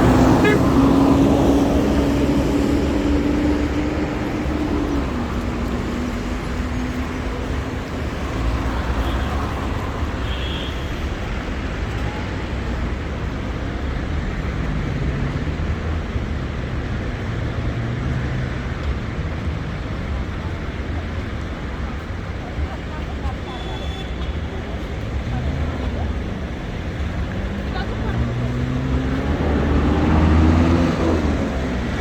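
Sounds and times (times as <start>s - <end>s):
engine hum passing by: 0.0s - 10.2s, 24.5s - 32.0s
traffic rumble: 0.0s - 32.0s.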